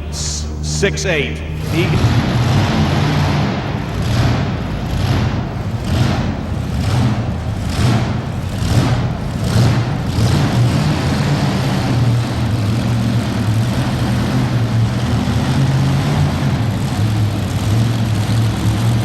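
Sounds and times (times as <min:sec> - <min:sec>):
tractor engine droning: 0:00.0 - 0:19.0.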